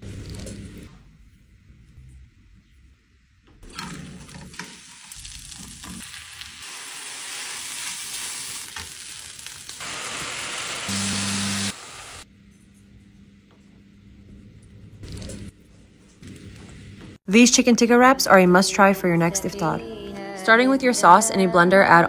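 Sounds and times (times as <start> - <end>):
food sizzling in frying pans: 3.7 - 12.2.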